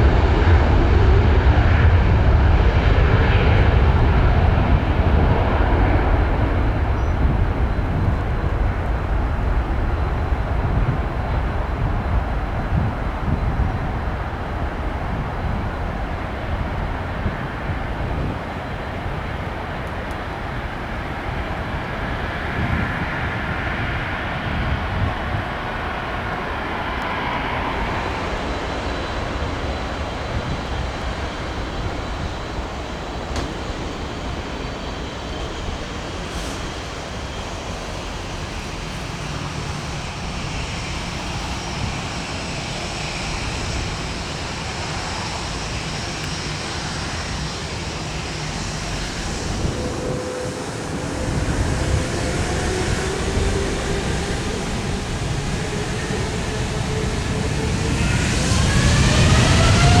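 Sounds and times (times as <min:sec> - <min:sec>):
jet engine roar: 0:00.0 - 1:00.0
engine whine rising in pitch: 0:26.5 - 1:00.0.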